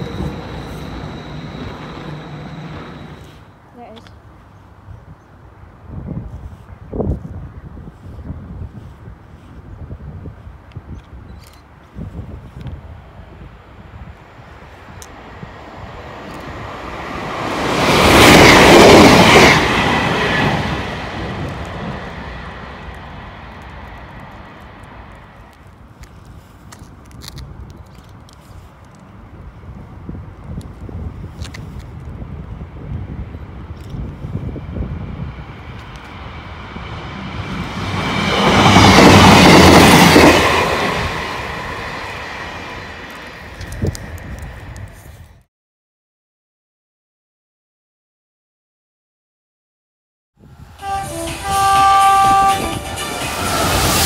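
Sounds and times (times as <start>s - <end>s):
passenger train passing: 0.0s - 4.0s, 12.1s - 26.0s, 29.0s - 45.3s, 50.4s - 54.0s.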